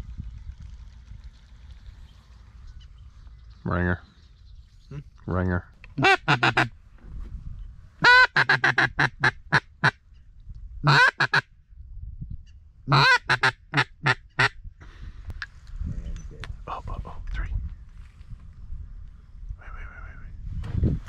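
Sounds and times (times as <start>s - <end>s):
duck call quacking: 6.0s - 6.7s, 8.0s - 10.0s, 10.8s - 11.4s, 12.9s - 14.6s.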